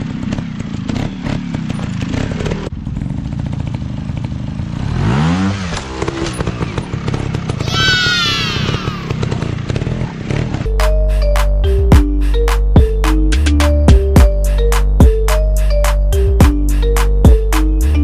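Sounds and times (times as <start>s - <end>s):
motorcycle engines revving: 0.0s - 10.7s.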